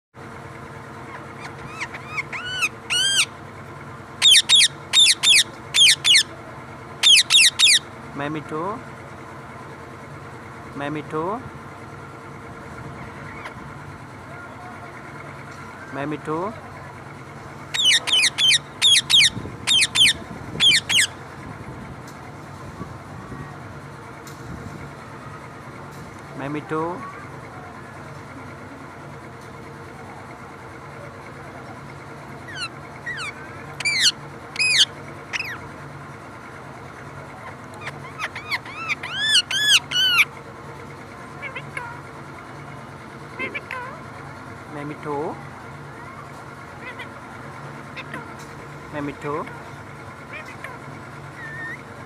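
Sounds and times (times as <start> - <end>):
parrot screeching: 1.1 - 3.3, 4.2 - 6.3, 7.0 - 7.8, 17.7 - 21.1, 32.5 - 35.6, 37.4 - 40.3, 41.4 - 42.0, 46.8 - 47.2, 48.0 - 48.3, 50.3 - 51.9
parrot whistled chirps: 1.4 - 3.3, 4.2 - 6.3, 17.8 - 21.1, 32.5 - 35.6, 37.8 - 40.3, 51.4 - 51.8.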